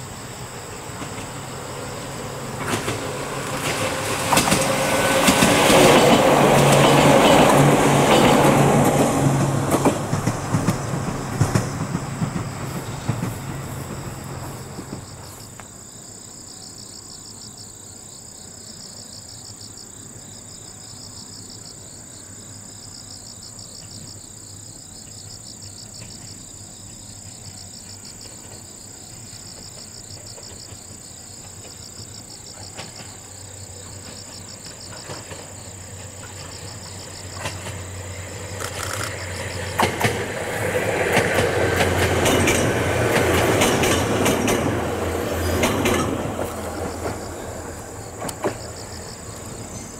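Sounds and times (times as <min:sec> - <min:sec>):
crickets chirping: 0:00.0 - 0:49.9
electric train passing: 0:00.0 - 0:49.9
wheels clicking over rail joints: 0:00.7 - 0:15.7, 0:25.9 - 0:49.9.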